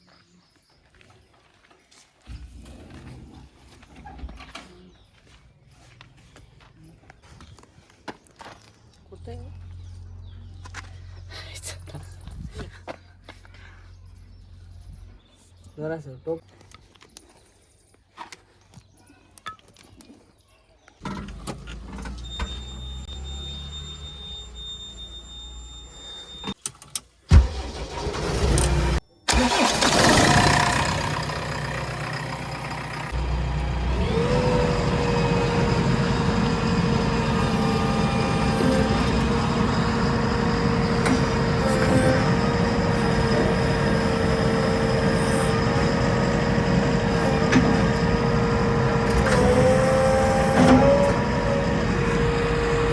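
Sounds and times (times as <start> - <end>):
diesel engine running: 21.0 - 26.6, 27.4 - 52.9
high whining tone: 31.8 - 52.9.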